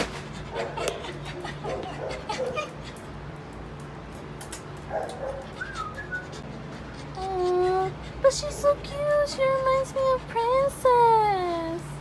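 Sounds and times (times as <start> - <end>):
dogs whining: 5.0 - 10.6.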